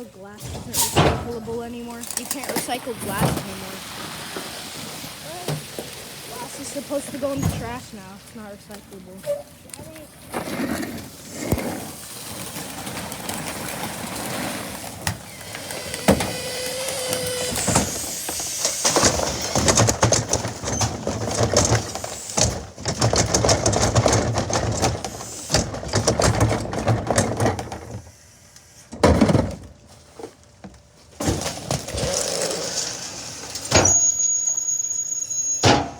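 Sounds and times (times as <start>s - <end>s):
garbage truck mechanical hum: 0.0s - 35.9s
clattering and knocking: 17.4s - 28.0s.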